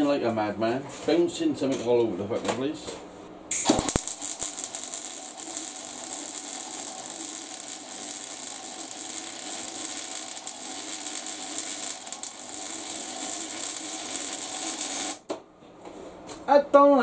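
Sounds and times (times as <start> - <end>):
arc welder crackling hiss: 3.5 - 15.3.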